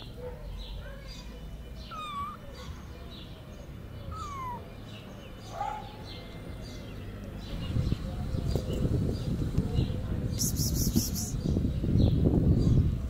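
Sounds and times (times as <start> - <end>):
kitten mewing: 1.9 - 2.5, 4.1 - 4.7.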